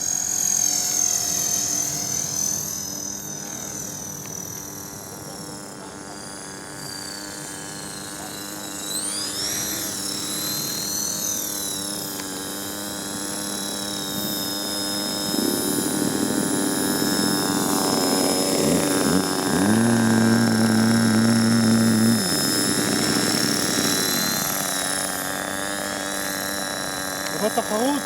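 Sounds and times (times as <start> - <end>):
low hum: 0.0 - 28.0
rc helicopter motor and rotors whining: 0.0 - 28.0.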